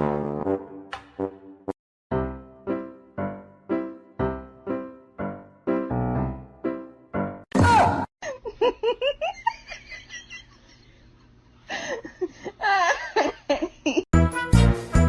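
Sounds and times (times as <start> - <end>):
music: 0.0 - 7.5, 14.2 - 15.0.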